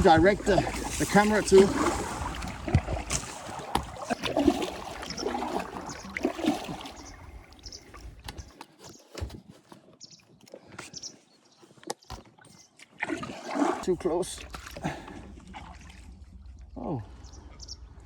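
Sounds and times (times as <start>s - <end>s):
water splashing and gurgling: 0.0s - 9.4s, 11.8s - 18.0s
knocks on kayak hull: 1.8s - 5.0s.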